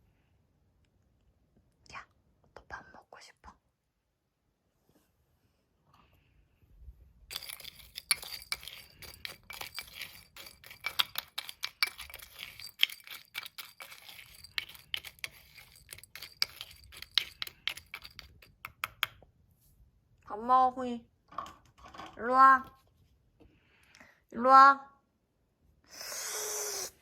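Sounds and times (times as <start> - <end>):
dry kibble clattering into bowl: 7.3 - 19.2.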